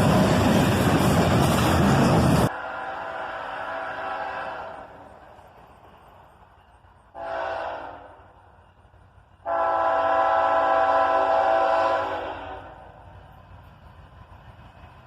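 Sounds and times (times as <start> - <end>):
locomotive air horn blasts: 2.5 - 5.0, 7.1 - 8.2, 9.4 - 13.0.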